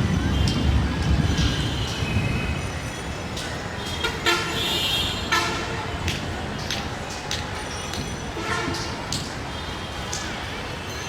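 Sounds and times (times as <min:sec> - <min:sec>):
passing train rumble: 0:00.0 - 0:04.7
vehicle horns honking: 0:04.0 - 0:05.9, 0:08.4 - 0:09.0.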